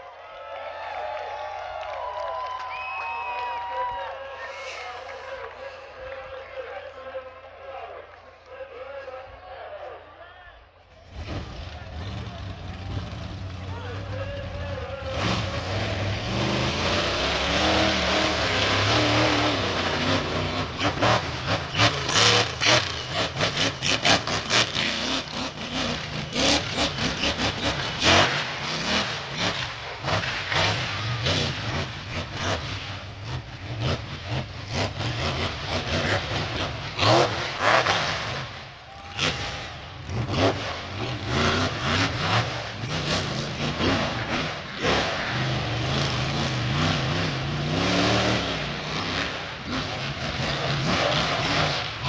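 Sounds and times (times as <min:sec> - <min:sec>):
truck engine revving: 0:11.0 - 0:52.0.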